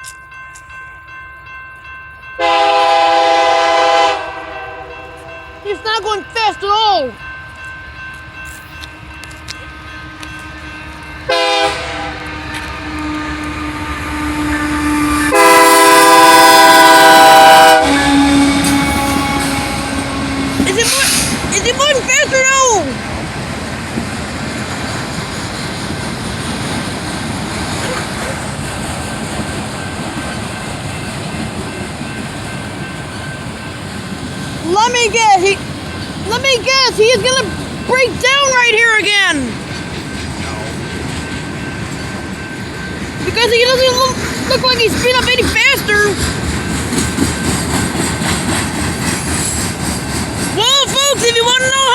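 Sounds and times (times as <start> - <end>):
low rumble of slow train: 0.0 - 51.9
locomotive air horn blasts: 2.4 - 5.6, 10.9 - 21.4.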